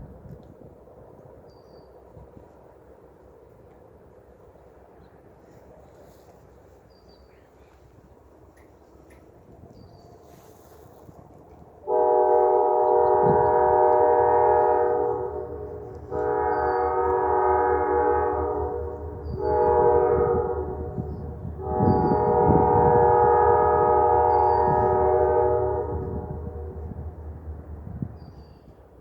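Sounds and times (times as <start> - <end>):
low engine rumble: 3.2 - 29.0
locomotive air horn blasts: 11.8 - 28.2.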